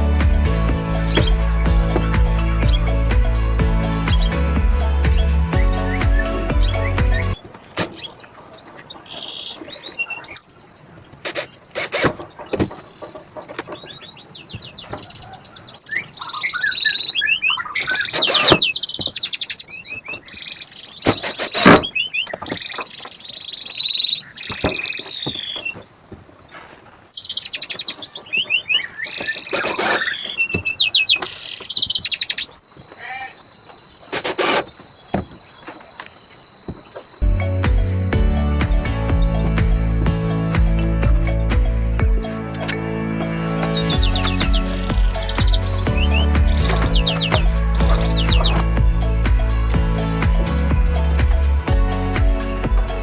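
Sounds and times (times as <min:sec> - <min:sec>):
small birds chirping trills: 0:00.9 - 0:03.2, 0:05.0 - 0:50.2.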